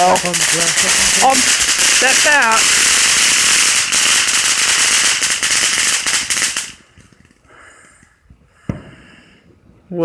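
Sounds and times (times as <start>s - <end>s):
firework crackling: 0.0s - 9.0s
sharp pop: 8.6s - 9.0s.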